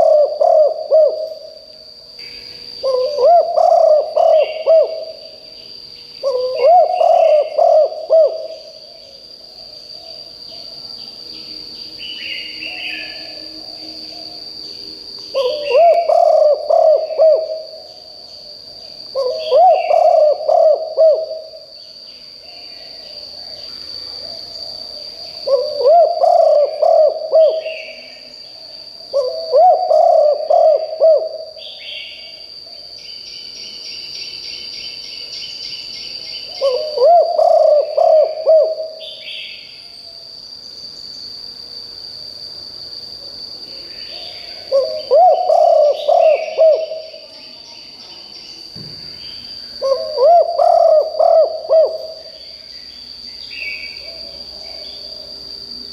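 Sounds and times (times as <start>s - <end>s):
dove cooing: 0.0s - 1.6s, 2.8s - 5.4s, 6.2s - 8.8s, 15.3s - 18.1s, 19.2s - 21.7s, 25.4s - 28.2s, 29.1s - 32.1s, 36.5s - 39.4s, 44.1s - 47.2s, 49.8s - 52.4s
steady high buzz: 0.0s - 55.9s.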